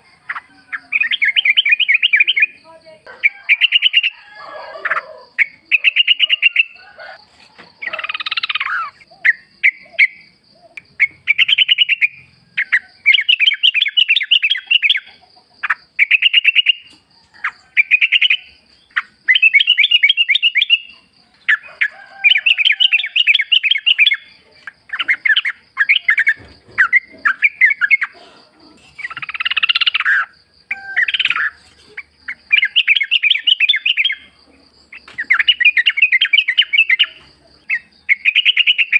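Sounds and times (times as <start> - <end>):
bulbul singing bubbly phrases: 0.1 - 4.2, 5.0 - 6.8.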